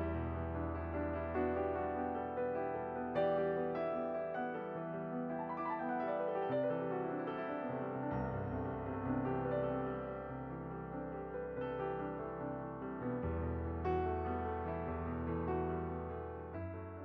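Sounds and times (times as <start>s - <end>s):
gentle piano piece: 0.0s - 17.0s.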